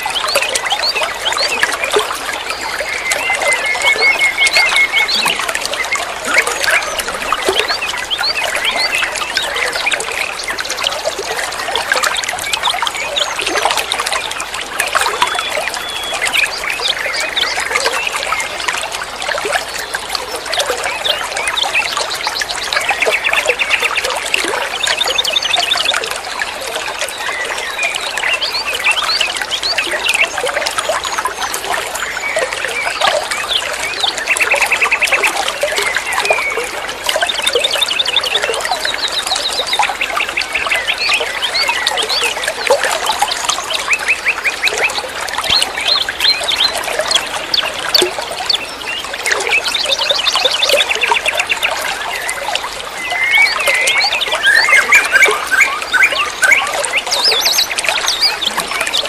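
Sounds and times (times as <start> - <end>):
small birds chirping: 0.0 - 14.4, 26.8 - 59.0
water trickling: 0.0 - 59.0.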